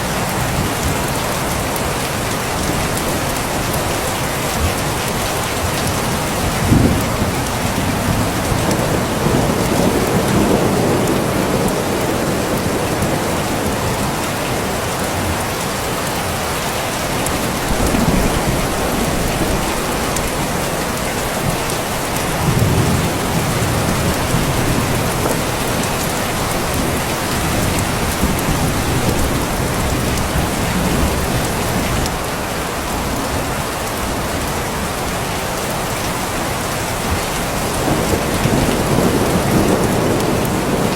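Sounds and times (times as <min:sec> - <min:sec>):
steady rain: 0:00.0 - 0:40.9
thunder rumbling: 0:04.6 - 0:15.4, 0:17.0 - 0:34.9, 0:37.0 - 0:40.9.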